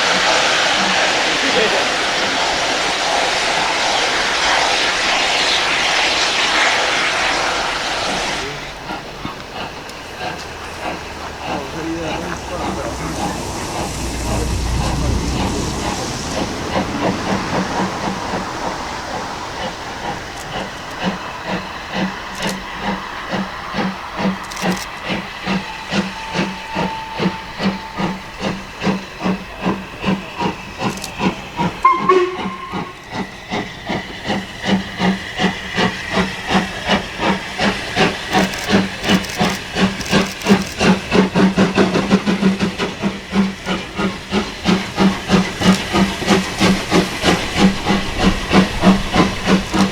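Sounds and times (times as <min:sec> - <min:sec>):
steam locomotive exhaust beating: 0:00.0 - 0:49.9
locomotive whistle toot: 0:10.5 - 0:18.4, 0:25.1 - 0:33.8.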